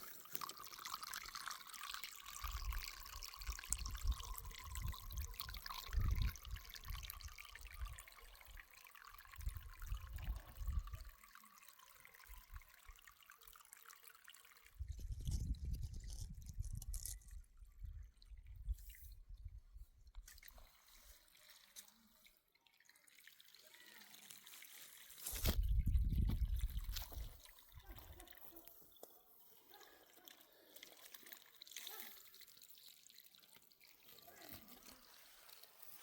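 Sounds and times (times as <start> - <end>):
water trickling: 0.0 - 36.0.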